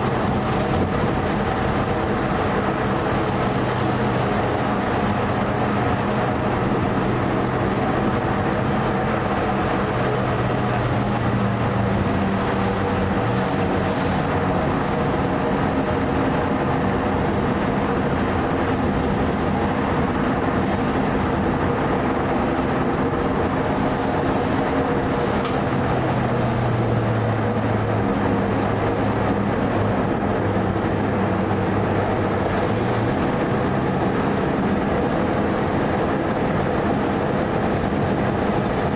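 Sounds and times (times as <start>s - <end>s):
car engine running hard: 0.0s - 38.9s
rushing noise in cabin: 0.0s - 38.9s.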